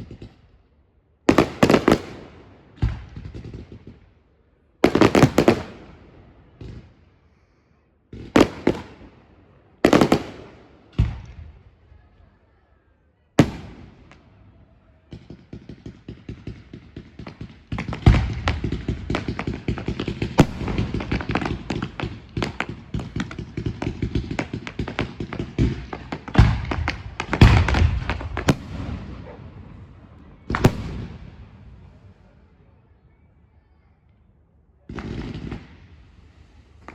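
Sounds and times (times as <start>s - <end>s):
fireworks crackling barrage: 0.0s - 0.4s, 1.3s - 4.0s, 4.8s - 7.0s, 8.1s - 11.7s, 13.4s - 32.7s, 34.9s - 36.9s
fireworks bangs echoing: 1.3s - 4.0s, 4.8s - 7.0s, 8.1s - 11.7s, 13.4s - 14.5s, 15.1s - 32.3s, 34.9s - 36.9s.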